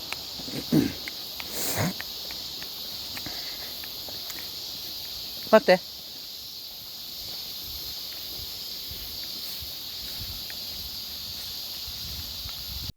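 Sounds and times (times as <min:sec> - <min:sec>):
insects chirping: 0:00.0 - 0:12.9
wind rumble on microphone: 0:07.6 - 0:12.9.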